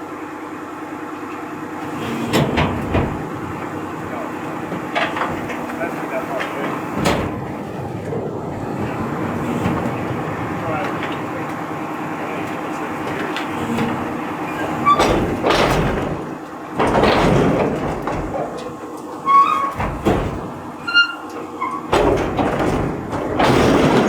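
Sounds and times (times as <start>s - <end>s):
garbage truck clattering: 1.3s - 24.0s
short high squeaks: 19.3s - 19.8s, 20.8s - 21.9s.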